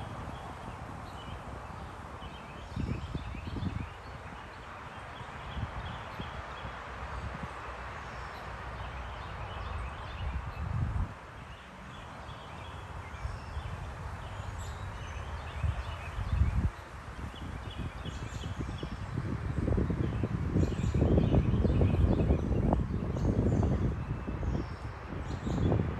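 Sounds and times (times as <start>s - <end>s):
small birds chirping: 0.0s - 19.1s
steady outdoor hiss: 0.0s - 25.9s.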